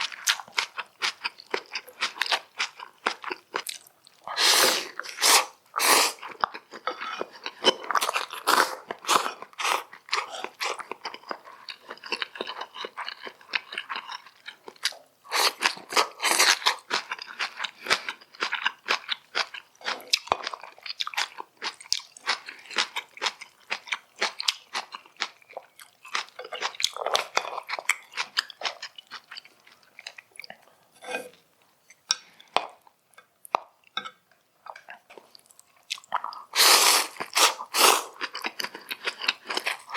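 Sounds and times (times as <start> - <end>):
chewing and biting food: 0.0 - 4.3, 6.2 - 30.7, 37.1 - 39.9.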